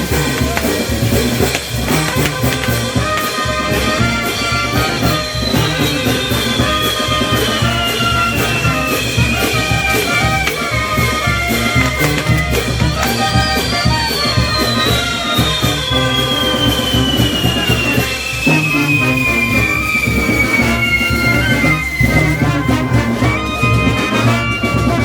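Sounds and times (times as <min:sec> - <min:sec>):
brass band playing: 0:00.0 - 0:25.0.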